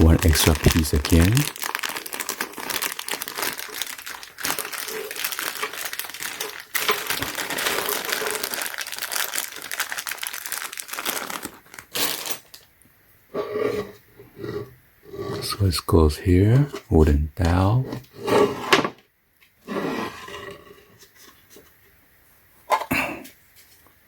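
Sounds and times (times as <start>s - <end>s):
handling sounds: 0.0s - 12.6s
packaging crinkling: 0.0s - 12.7s.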